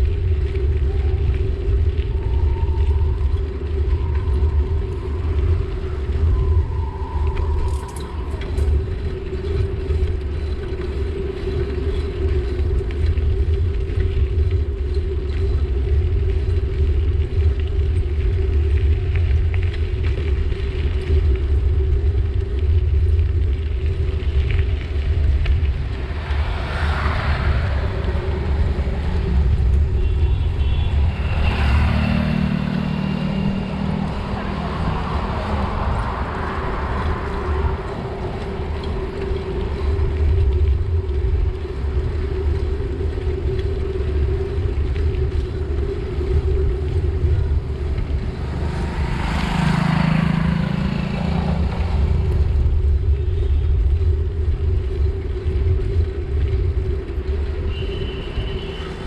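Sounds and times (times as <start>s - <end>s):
engine with steady pitch: 0.0s - 59.0s
road traffic: 0.0s - 59.0s
wind buffeting microphone: 0.0s - 59.0s
vehicle passing: 25.0s - 40.4s, 47.6s - 53.1s.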